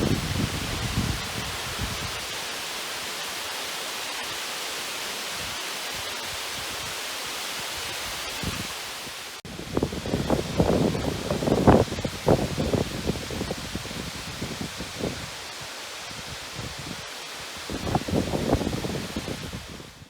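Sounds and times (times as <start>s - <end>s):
wind buffeting microphone: 0.0s - 2.3s, 9.5s - 15.4s, 17.6s - 20.0s
water rushing through a dam: 0.0s - 20.0s.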